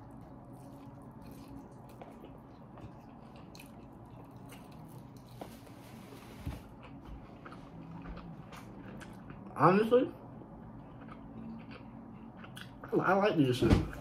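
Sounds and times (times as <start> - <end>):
person biting and chewing: 0.0 - 5.4.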